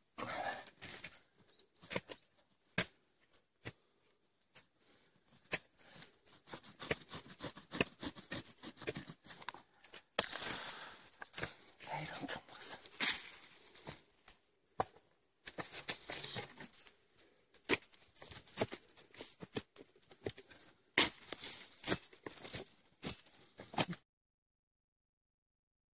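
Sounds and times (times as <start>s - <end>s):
shovel digging into soil: 5.4s - 9.5s, 21.0s - 24.0s
rustling undergrowth: 8.1s - 23.8s.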